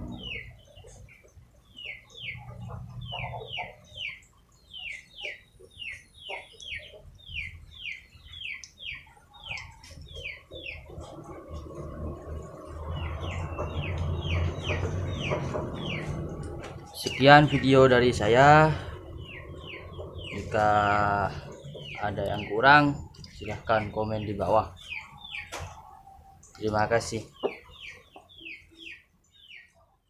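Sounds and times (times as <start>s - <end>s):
bird chirping: 0.0s - 30.0s
low rough noise: 9.4s - 26.0s.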